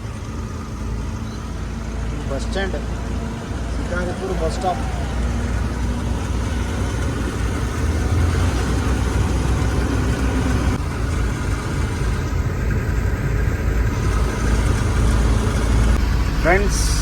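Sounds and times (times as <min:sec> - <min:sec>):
road noise: 0:00.0 - 0:17.0
truck engine running: 0:00.0 - 0:17.0.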